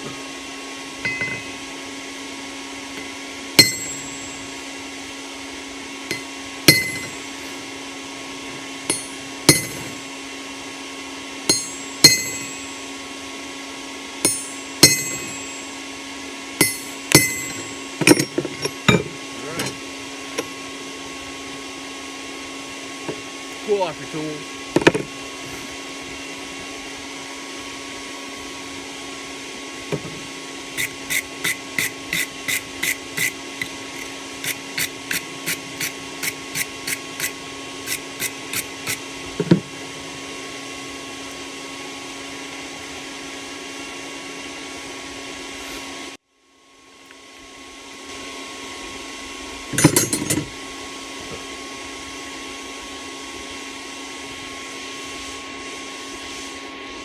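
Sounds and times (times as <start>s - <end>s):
forge blower hum: 0.0s - 57.0s
hammer striking steel on anvil: 1.0s - 1.6s, 3.0s - 4.4s, 6.1s - 7.2s, 8.9s - 10.0s, 11.5s - 12.7s, 14.2s - 15.7s, 16.6s - 19.8s, 30.8s - 39.0s.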